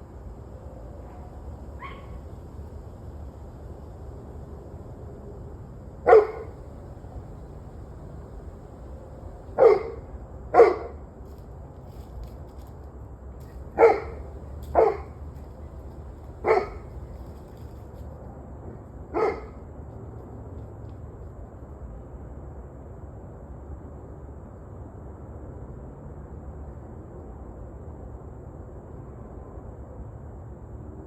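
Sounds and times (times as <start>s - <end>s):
low background hum: 0.0s - 23.7s
dog barking: 1.0s - 2.2s, 6.1s - 6.6s, 9.3s - 11.0s, 13.7s - 15.7s, 16.4s - 17.2s, 19.1s - 19.6s.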